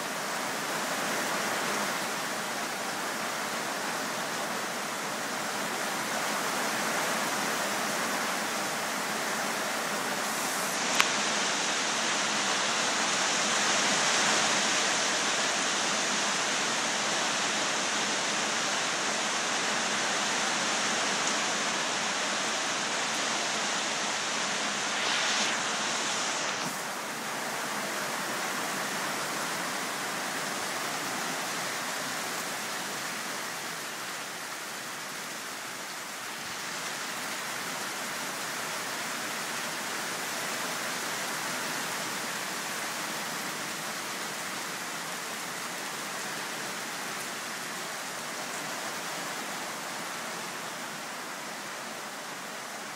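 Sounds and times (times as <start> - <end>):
heavy rain falling: 0.0 - 52.9.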